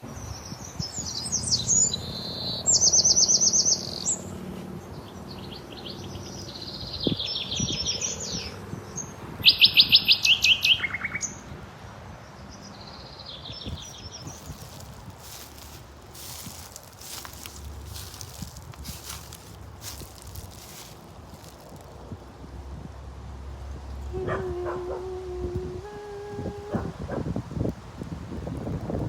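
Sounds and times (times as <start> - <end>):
songbirds trilling: 12.6 - 22.1.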